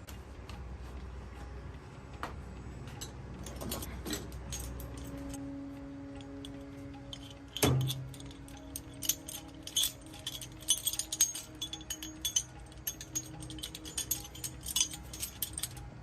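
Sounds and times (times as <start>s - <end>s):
metal parts clinking: 3.0s - 5.4s, 6.1s - 16.0s.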